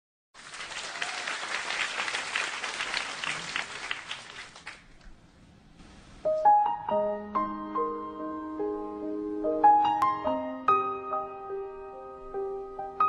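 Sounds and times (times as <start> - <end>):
audience applauding: 0.4 - 5.1
piano playing: 6.2 - 13.0.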